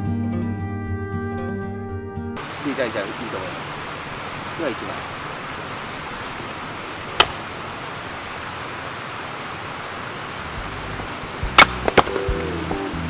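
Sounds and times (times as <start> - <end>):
axe splitting firewood: 4.8 - 7.6, 11.5 - 12.8
background music: 11.5 - 13.0.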